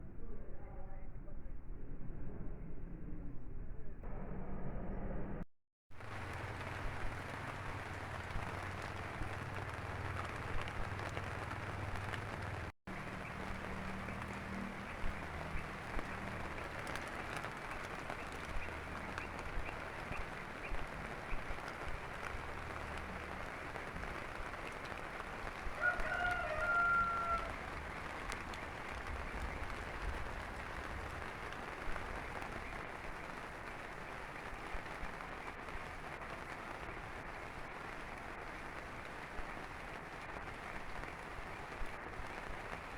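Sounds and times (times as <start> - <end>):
low hum: 0.0 - 5.5
steady rain: 5.9 - 42.9
rooster crowing: 25.8 - 27.7.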